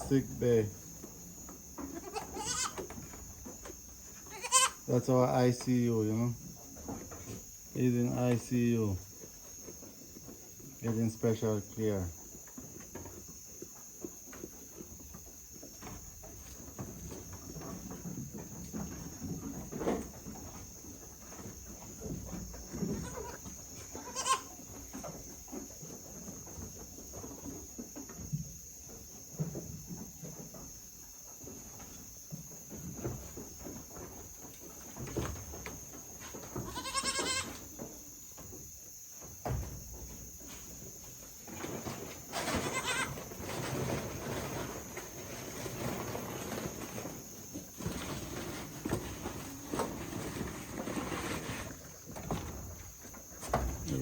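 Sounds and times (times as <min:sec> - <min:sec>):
insects chirring: 0:00.0 - 0:54.0
soft knocks and shuffling: 0:00.0 - 0:54.0
goat bleating: 0:01.9 - 0:02.8, 0:04.2 - 0:04.8, 0:23.0 - 0:24.6, 0:36.6 - 0:37.6, 0:42.6 - 0:43.2.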